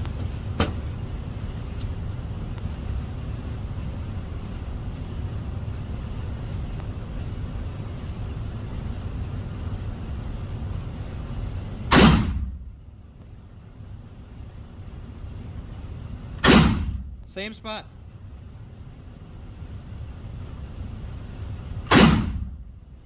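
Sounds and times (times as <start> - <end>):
steady low rumble: 0.0 - 23.0
gunshot: 11.9 - 12.6, 16.4 - 17.1, 21.9 - 22.6.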